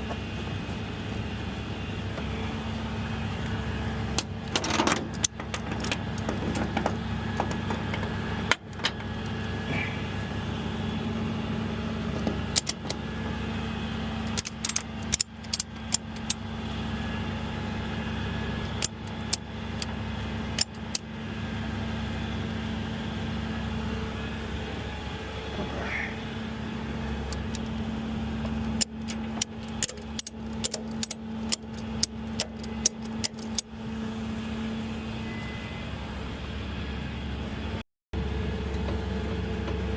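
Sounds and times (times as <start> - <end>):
vehicle engine running: 0.0 - 39.9
sharp clicks and rattles: 4.1 - 9.4, 12.1 - 13.0, 14.2 - 16.4, 18.7 - 21.1, 28.4 - 33.7.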